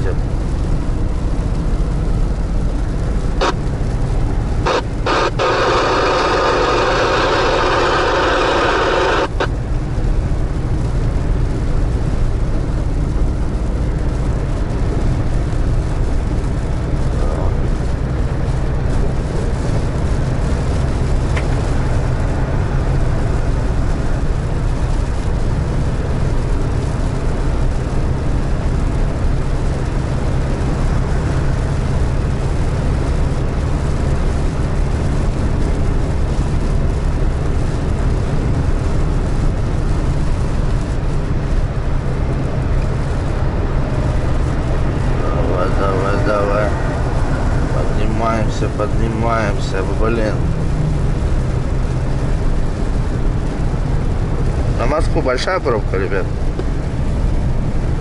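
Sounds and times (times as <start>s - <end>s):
radio hiss and crackle: 0.0s - 58.0s
van driving drone from inside: 0.0s - 58.0s
radio clicks: 3.4s - 9.5s.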